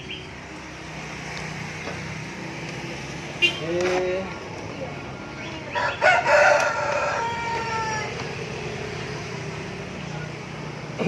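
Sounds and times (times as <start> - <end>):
rooster crowing: 5.7 - 8.3.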